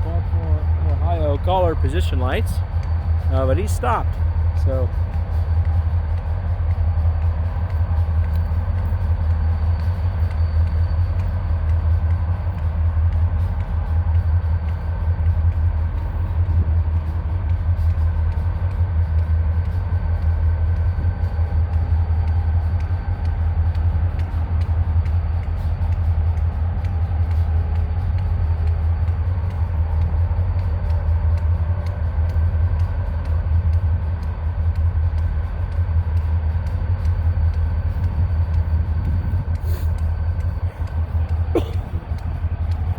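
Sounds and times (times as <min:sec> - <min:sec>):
diesel locomotive idling: 0:00.0 - 0:42.9.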